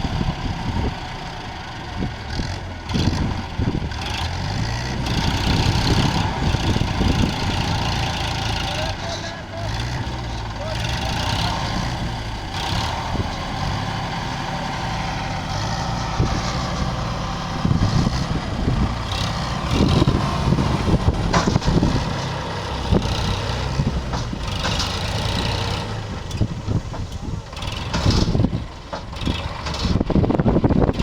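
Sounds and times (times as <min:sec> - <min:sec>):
tractor diesel engine running: 0:00.0 - 0:31.0
sharp knocks: 0:21.2 - 0:21.9.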